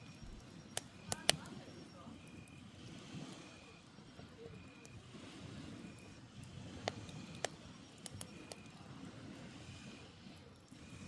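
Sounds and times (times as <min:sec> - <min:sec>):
campfire crackling: 0:00.0 - 0:11.0
low rumble of sea waves: 0:00.0 - 0:11.0.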